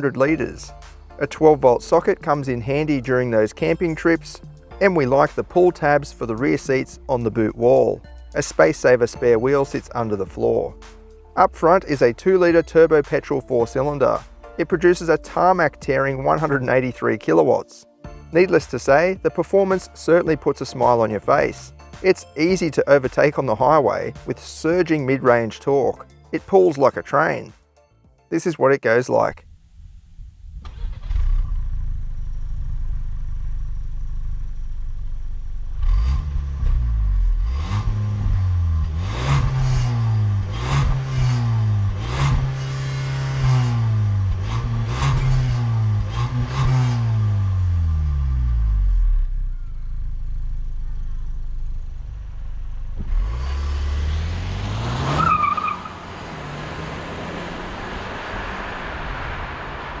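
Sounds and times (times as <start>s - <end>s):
road noise: 0.0s - 26.8s, 29.2s - 60.0s
car engine accelerating: 29.8s - 60.0s.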